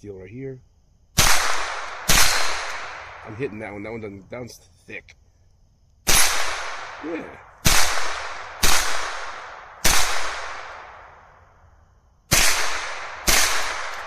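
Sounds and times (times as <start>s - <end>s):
pistol shots with echo: 1.2s - 3.3s, 6.1s - 11.2s, 12.3s - 14.0s.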